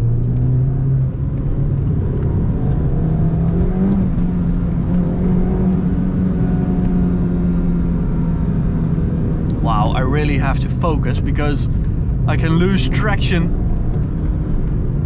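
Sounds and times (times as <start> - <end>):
car engine inside cabin: 0.0 - 15.0
road noise: 0.0 - 15.0.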